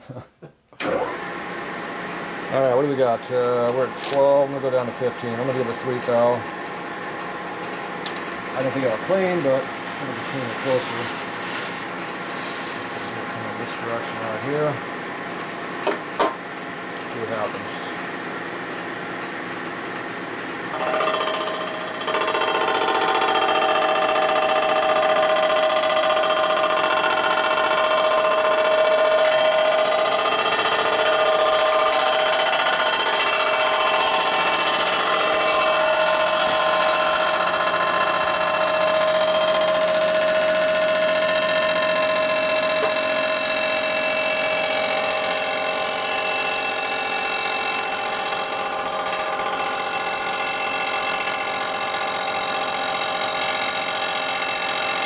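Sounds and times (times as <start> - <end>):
machine tool cutter whining: 20.7 - 55.0.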